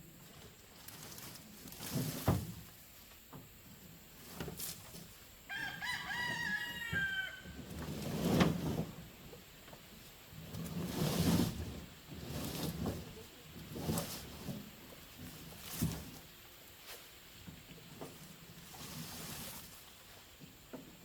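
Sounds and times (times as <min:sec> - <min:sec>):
rustling: 0:00.1 - 0:03.3, 0:06.8 - 0:20.5
rooster crowing: 0:05.5 - 0:07.6.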